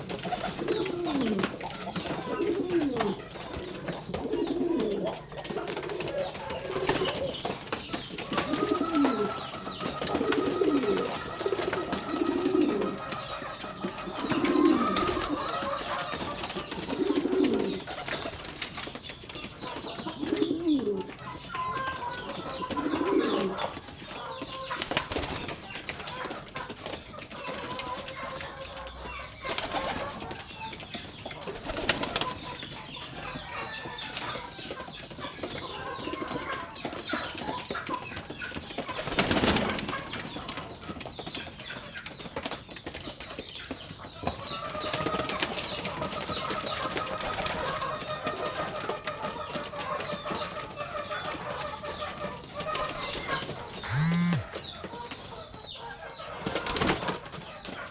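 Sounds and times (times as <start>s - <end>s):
wings flapping: 0.0s - 21.1s, 24.7s - 28.4s, 29.4s - 30.5s, 31.4s - 32.4s, 38.8s - 41.1s, 52.6s - 54.6s, 56.4s - 57.8s
pigeons cooing: 0.0s - 41.4s, 42.9s - 54.8s.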